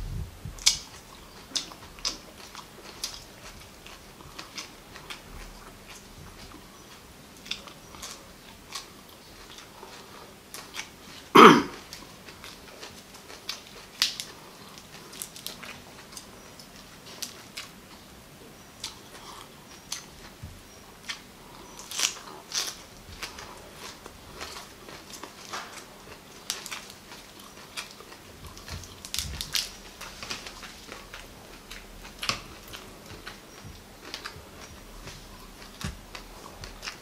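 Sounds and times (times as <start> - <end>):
crisp chewing crunches: 0.6 - 18.0, 18.8 - 37.0
loud short mouth noise: 11.4 - 11.8.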